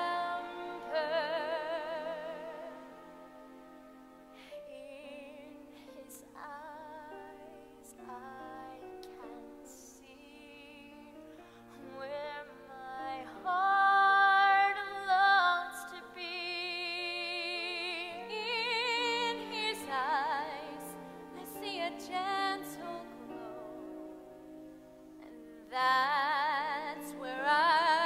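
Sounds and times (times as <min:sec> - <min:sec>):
women singing operatic ballad: 0:00.0 - 0:03.6, 0:04.3 - 0:24.6, 0:25.2 - 0:28.0
instrumental accompaniment: 0:00.0 - 0:28.0.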